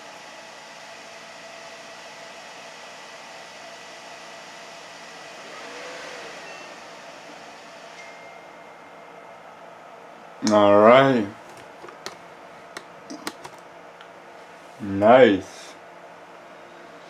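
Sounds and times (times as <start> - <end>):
computer fans running: 0.0 - 17.0
faint high whine: 4.2 - 11.3.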